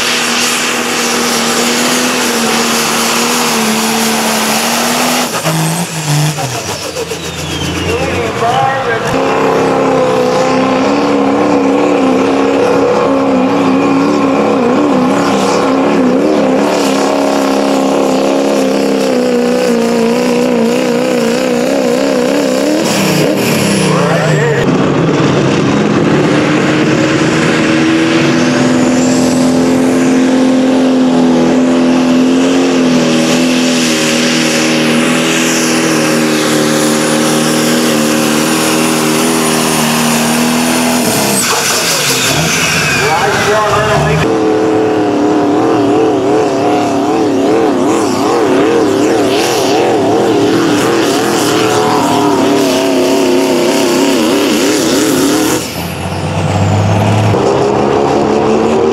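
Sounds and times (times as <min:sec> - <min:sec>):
engine running at high revs: 0:00.0 - 0:58.9.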